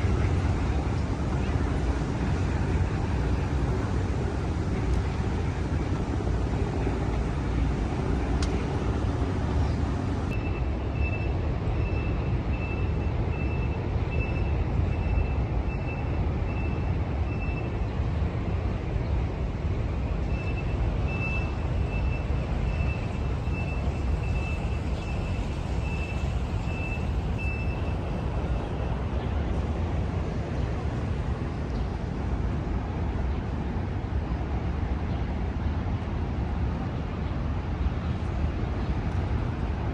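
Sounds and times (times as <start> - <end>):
city traffic rumble: 0.0 - 39.9
reversing alarm beeping: 10.3 - 17.8, 20.2 - 28.8.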